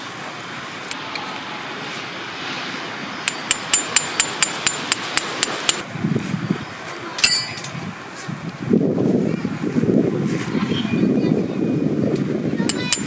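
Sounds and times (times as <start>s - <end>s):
hammer striking metal tent peg: 3.3s - 5.8s, 7.2s - 7.7s, 12.7s - 13.0s.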